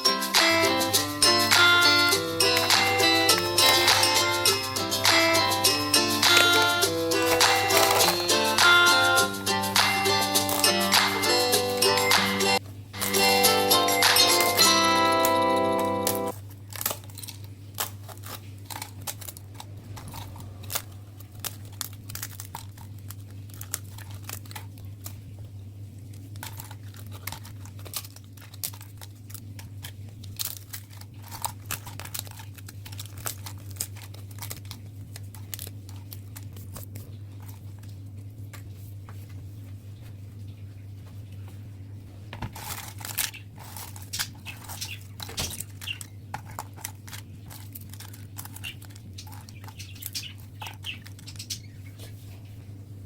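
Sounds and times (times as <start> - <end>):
background music: 0.0 - 16.3
crisps crackling and crunching: 0.0 - 52.8
low hum: 19.2 - 23.0.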